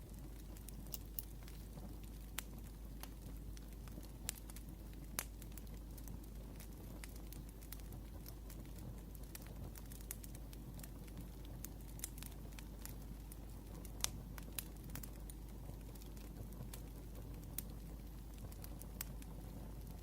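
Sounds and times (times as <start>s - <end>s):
low steady rumble: 0.0s - 13.6s
wood fire crackling: 0.0s - 20.0s.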